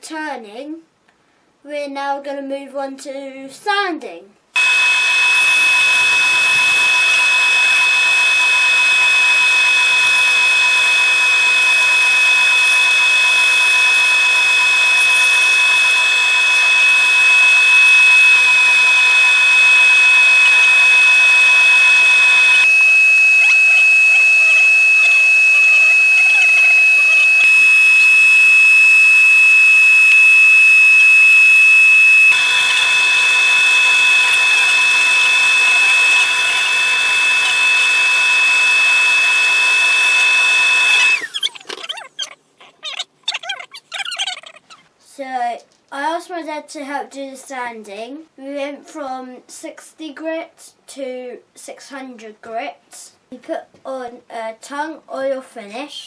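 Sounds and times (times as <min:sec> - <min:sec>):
wood lathe high-pitched whine: 0:04.6 - 0:41.7.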